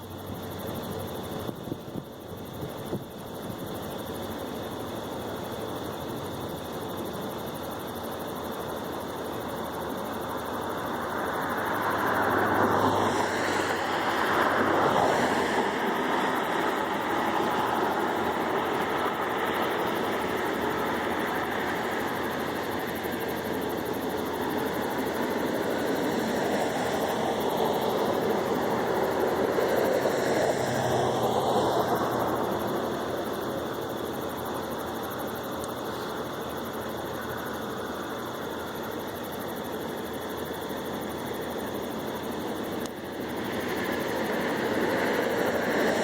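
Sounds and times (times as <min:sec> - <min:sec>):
aircraft engine passing overhead: 0:09.5 - 0:46.0.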